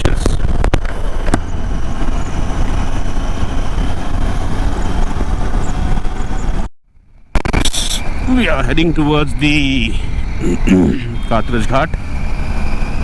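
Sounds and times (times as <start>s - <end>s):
wind rushing on microphone: 0.0s - 6.7s
road noise: 0.0s - 13.0s.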